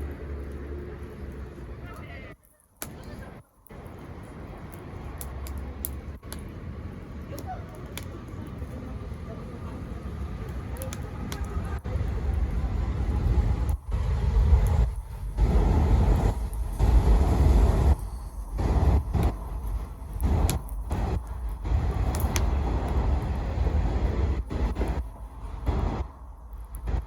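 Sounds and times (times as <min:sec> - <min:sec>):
bonfire crackling and popping: 0:00.0 - 0:27.0
wind buffeting microphone: 0:03.7 - 0:27.0.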